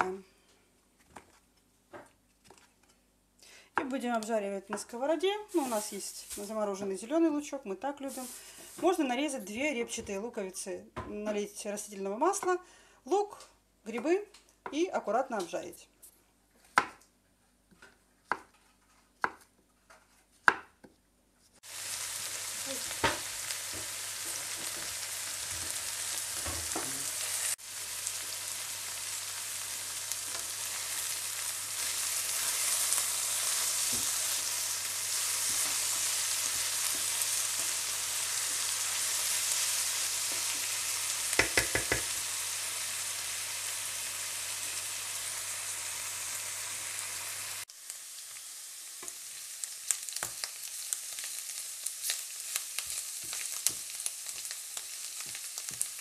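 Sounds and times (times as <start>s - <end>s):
vegetables sizzling in oil: 3.8s - 10.3s, 21.6s - 56.0s
wooden spatula knocking on pan: 41.4s - 42.1s.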